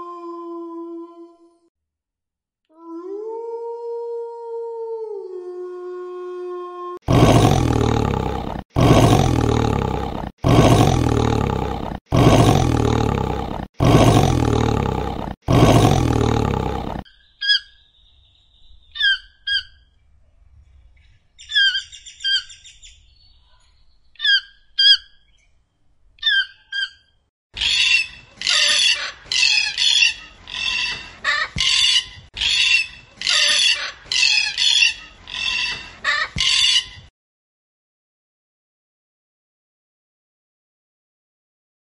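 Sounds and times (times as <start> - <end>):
animal roars: 7.0 - 17.1
bird chirps: 17.1 - 20.0, 20.7 - 25.6.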